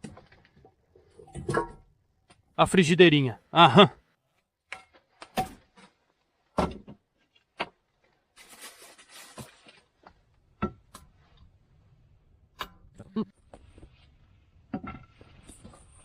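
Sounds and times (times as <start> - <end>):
rustling: 7.1 - 10.2.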